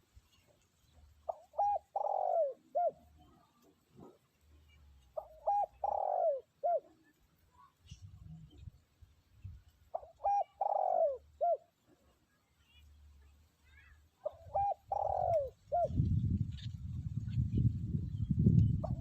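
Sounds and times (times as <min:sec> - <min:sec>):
dove cooing: 0:01.3 - 0:04.2, 0:05.1 - 0:07.2, 0:09.9 - 0:11.9, 0:14.2 - 0:16.1, 0:18.8 - 0:19.0.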